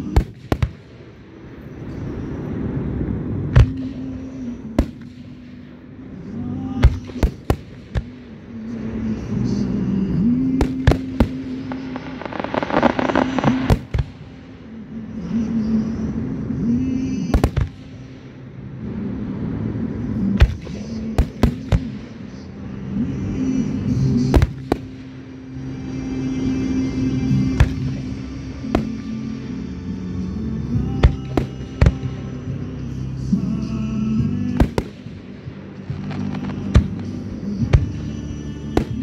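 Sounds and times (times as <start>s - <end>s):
fireworks bursting in bangs: 0.0s - 1.4s, 3.5s - 5.5s, 6.8s - 8.4s, 10.5s - 14.7s, 17.3s - 18.1s, 20.4s - 22.4s, 24.2s - 25.1s, 27.5s - 29.1s, 31.0s - 32.2s, 34.5s - 39.0s.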